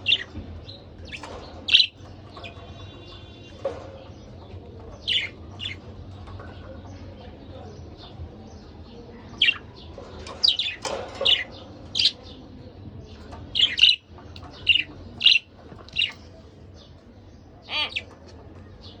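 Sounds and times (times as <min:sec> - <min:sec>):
budgerigars chirping and squawking: 0:00.0 - 0:12.4, 0:13.1 - 0:16.3, 0:17.6 - 0:19.0
warbled bird call: 0:17.7 - 0:18.1.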